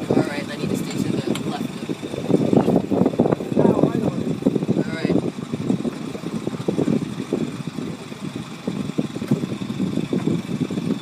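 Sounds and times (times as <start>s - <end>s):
boat engine low rumble: 0.0s - 11.0s.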